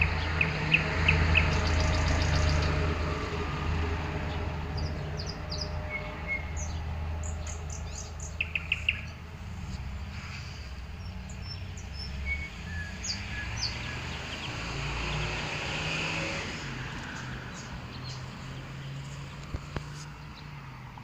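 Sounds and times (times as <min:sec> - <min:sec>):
broad rushing noise: 0:00.0 - 0:20.2
bird chirping and whistling: 0:07.8 - 0:09.1, 0:12.1 - 0:14.0.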